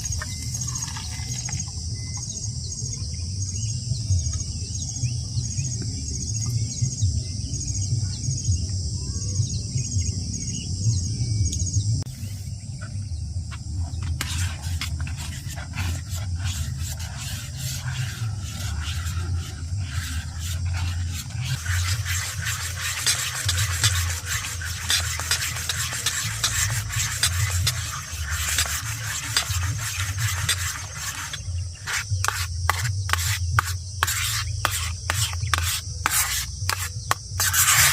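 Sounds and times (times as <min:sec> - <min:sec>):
insects trilling: 0:00.0 - 0:04.0, 0:12.1 - 0:37.9
scraping and clicking: 0:13.9 - 0:37.9.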